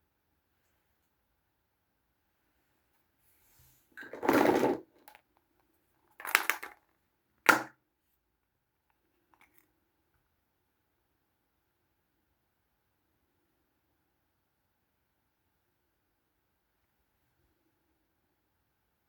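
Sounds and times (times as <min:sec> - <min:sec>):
plastic toys crinkling and clattering: 0:04.0 - 0:05.3, 0:06.0 - 0:07.7.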